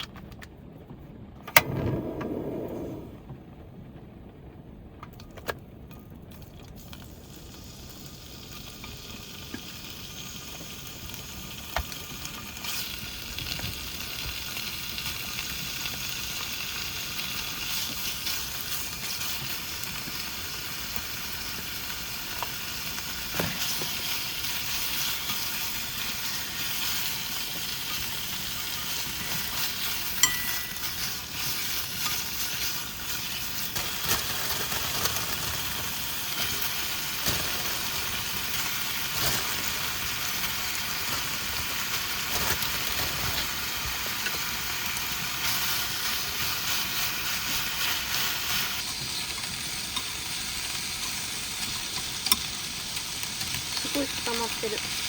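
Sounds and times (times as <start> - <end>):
food sizzling in a frying pan: 6.4 - 55.0
utensil clinking against pan: 30.2 - 31.2.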